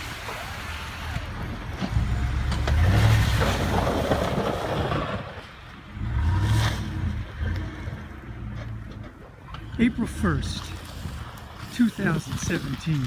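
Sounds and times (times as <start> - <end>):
vehicle engine revving: 1.4 - 5.3, 5.9 - 11.4.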